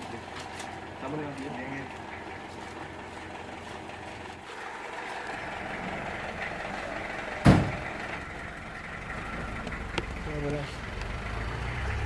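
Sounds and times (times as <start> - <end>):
background rumble: 1.8 - 11.5
sharp knock: 7.4 - 7.8.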